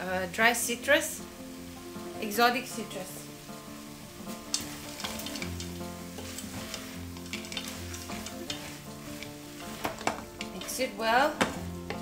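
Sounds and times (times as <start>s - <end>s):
food frying in a pot: 0.0s - 12.0s
wooden spoon scraping a pot: 4.3s - 12.0s.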